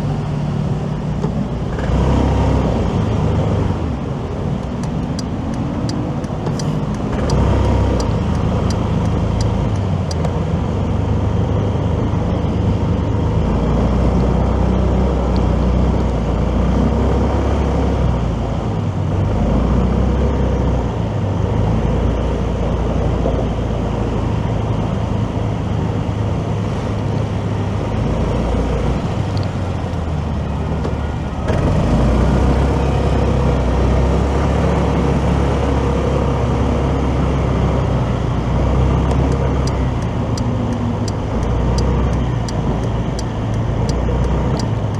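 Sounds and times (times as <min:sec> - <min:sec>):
motorcycle engine and road noise: 0:00.0 - 0:44.9
light ticks: 0:04.6 - 0:10.4, 0:29.3 - 0:30.0, 0:39.0 - 0:44.9.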